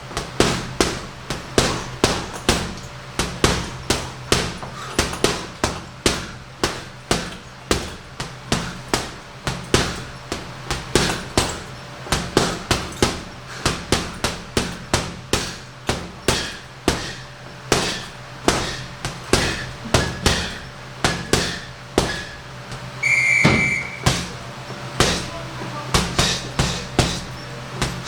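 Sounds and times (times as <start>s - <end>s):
punches on heavy bag: 0.1s - 22.8s, 23.4s - 24.4s, 25.0s - 25.3s, 25.9s - 28.0s
electronic beep: 23.0s - 24.0s.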